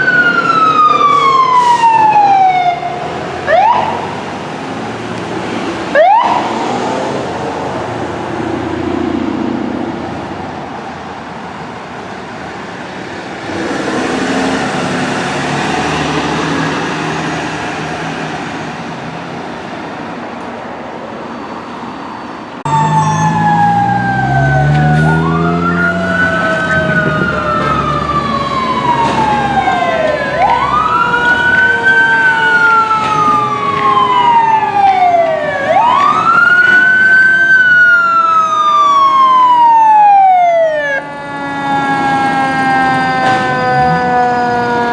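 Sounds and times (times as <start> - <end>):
electronic siren wail: 0.0 - 4.1, 5.9 - 6.7, 22.7 - 44.9
road noise: 0.0 - 44.9
diesel engine revving: 13.0 - 19.2, 22.6 - 36.7
siren tone gliding down: 21.4 - 44.9.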